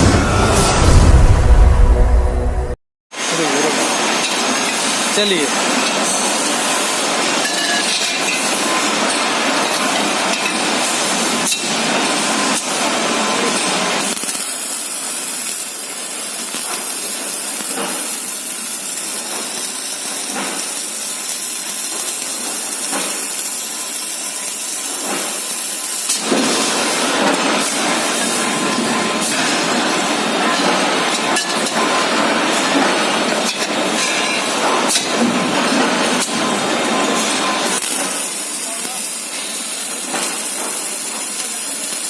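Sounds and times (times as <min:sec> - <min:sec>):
welding arc crackling hiss: 0:14.0 - 0:29.6, 0:37.6 - 0:42.0.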